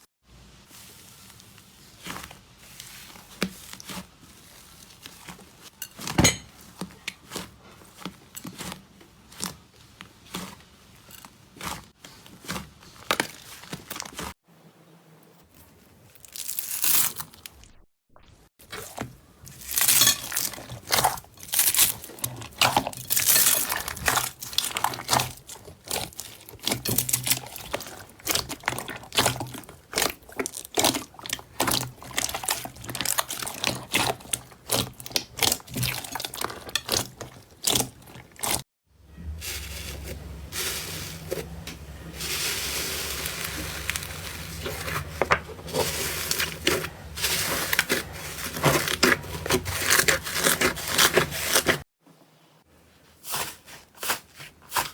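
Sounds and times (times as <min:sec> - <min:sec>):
slime crackling and popping: 0:19.6 - 0:38.6
low hum: 0:39.0 - 0:44.9.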